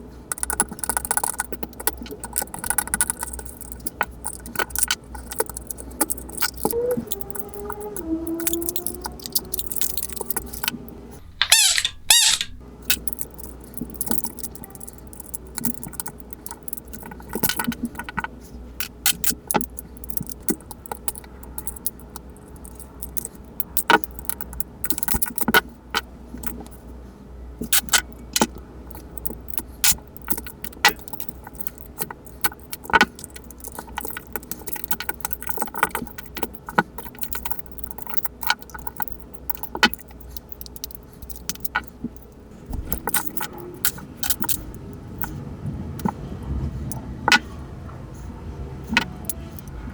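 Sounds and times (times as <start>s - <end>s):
small hard parts clicking: 0.3s - 26.8s, 27.6s - 45.4s, 46.0s - 46.2s
scraping squeak: 5.5s - 12.6s, 42.7s - 45.5s.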